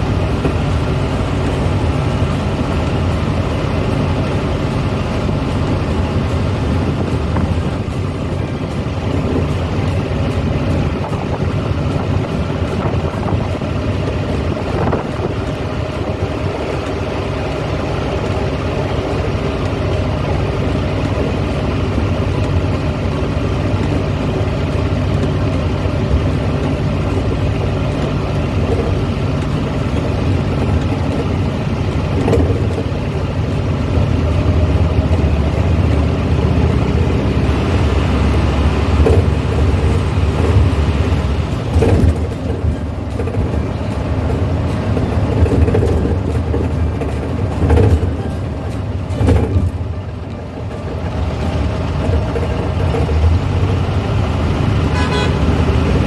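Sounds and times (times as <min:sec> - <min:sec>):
car engine running: 0:00.0 - 0:56.0
road noise: 0:00.0 - 0:56.0.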